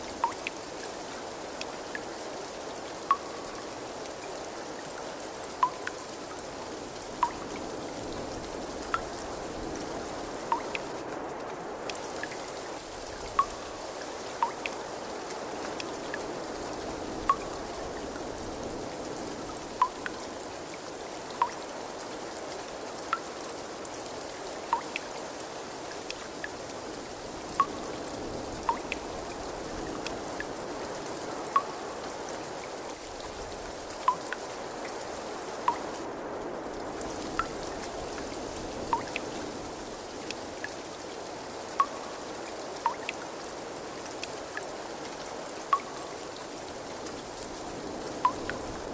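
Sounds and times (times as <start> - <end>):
water trickling: 0.0 - 36.1, 36.7 - 48.9
drops plinking into water: 0.2 - 0.6, 3.1 - 3.4, 5.6 - 6.0, 7.2 - 7.4, 10.5 - 10.9, 14.4 - 14.7, 19.8 - 20.2, 24.7 - 25.0, 28.7 - 29.0, 31.6 - 31.8, 34.1 - 34.4, 35.7 - 35.9, 38.9 - 39.2, 42.8 - 43.2.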